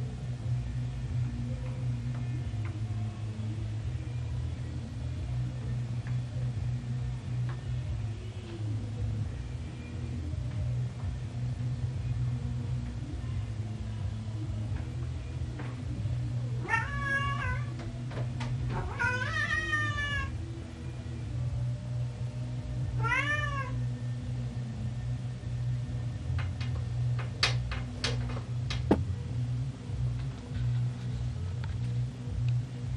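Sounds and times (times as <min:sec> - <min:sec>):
cat meowing: 0:16.6 - 0:17.8, 0:18.8 - 0:20.3, 0:23.0 - 0:23.8.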